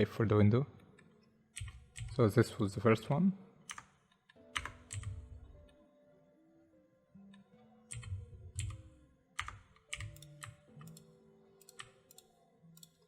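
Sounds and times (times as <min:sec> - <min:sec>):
computer keyboard key clicks: 0:01.6 - 0:02.2, 0:04.5 - 0:05.3, 0:07.9 - 0:13.0.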